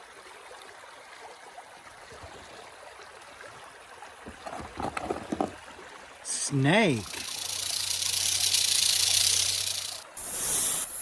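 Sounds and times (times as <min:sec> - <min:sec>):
stream running water: 0:00.0 - 0:11.0
knocks and rustles: 0:04.3 - 0:05.6.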